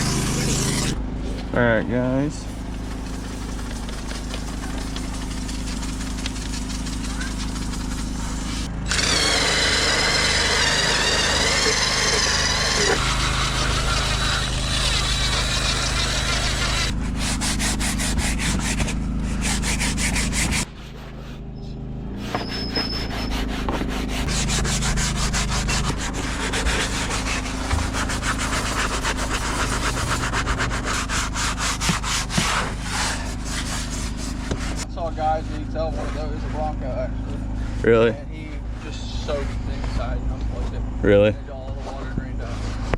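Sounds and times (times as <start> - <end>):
steady low hum: 0.0 - 42.9
brush scrubbing a surface: 2.4 - 21.4, 22.2 - 40.8, 41.5 - 42.9
wavering whine: 2.9 - 17.0.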